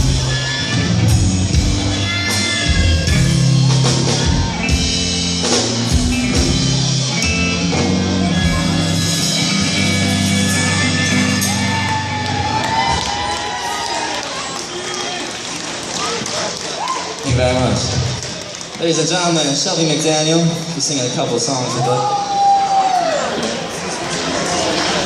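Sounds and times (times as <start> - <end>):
live rock band playing: 0.0 - 16.6.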